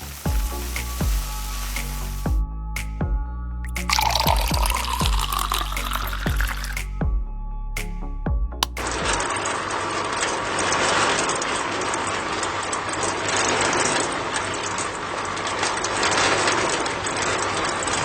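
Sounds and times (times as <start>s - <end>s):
music: 0.0s - 9.4s.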